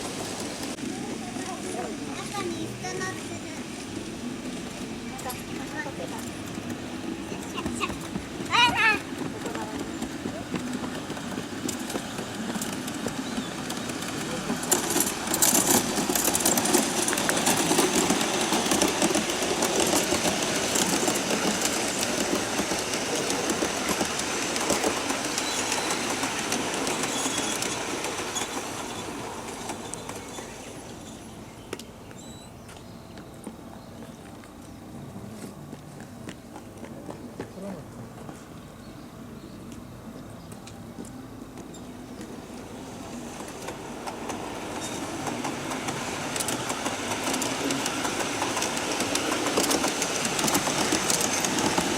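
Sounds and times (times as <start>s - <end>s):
model train wheels clicking: 4.6s - 30.6s, 43.4s - 51.9s.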